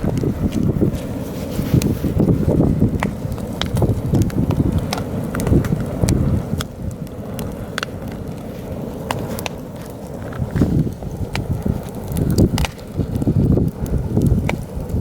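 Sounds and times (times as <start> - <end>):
campfire crackling and popping: 0.0 - 15.0
wind buffeting microphone: 0.0 - 15.0.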